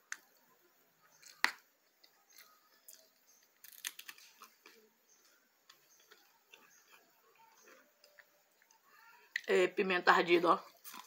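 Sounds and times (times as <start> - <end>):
chewing and mouth clicks: 5.6 - 9.5, 10.6 - 11.0.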